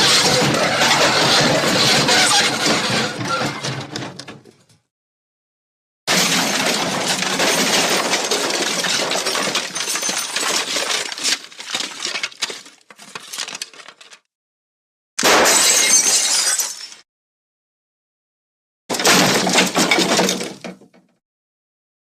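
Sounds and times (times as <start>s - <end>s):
broken glass pieces tinkling: 6.1s - 11.6s, 15.4s - 17.0s
glass shattering: 6.1s - 11.6s, 15.2s - 17.0s.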